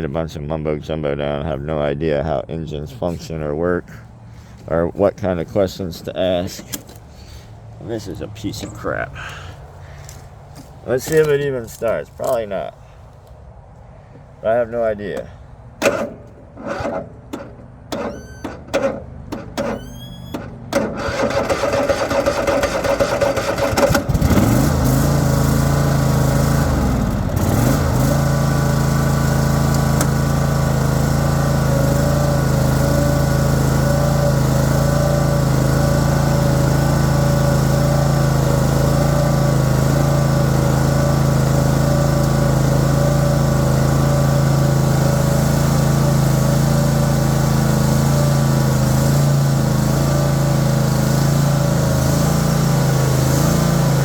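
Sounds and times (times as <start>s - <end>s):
mower engine cranking and starting: 5.9s - 7.5s, 8.5s - 12.6s, 14.8s - 54.0s
mower engine running: 15.8s - 54.0s.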